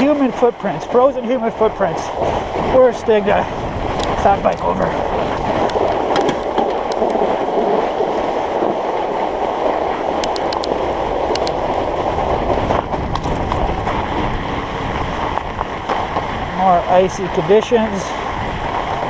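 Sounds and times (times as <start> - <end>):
studded tyres rumbling on ice: 0.0 - 19.0
wind on microphone: 0.0 - 19.0
light clicks: 10.2 - 11.6.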